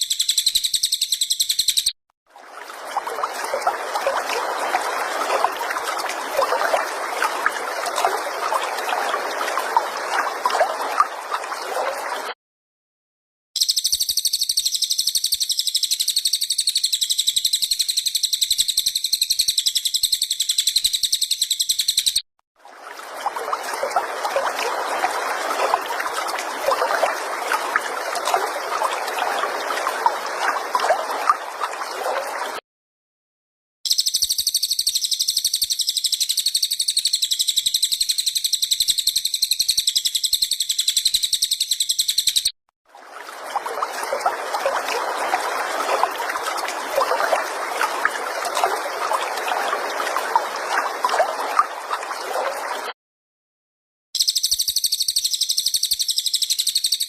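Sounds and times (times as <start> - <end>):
songbird high rapid trill: 0.0 - 2.0, 13.6 - 22.2, 33.9 - 42.5, 54.2 - 57.0
water trickling and gurgling: 2.3 - 12.4, 22.6 - 32.6, 42.9 - 53.0.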